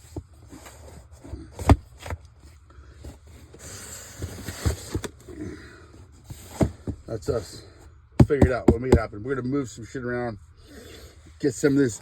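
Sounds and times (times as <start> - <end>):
scraping and rustling: 0.0 - 7.7
boxes thumping and knocking: 0.1 - 2.2, 3.1 - 5.5, 6.2 - 7.5, 8.2 - 9.2.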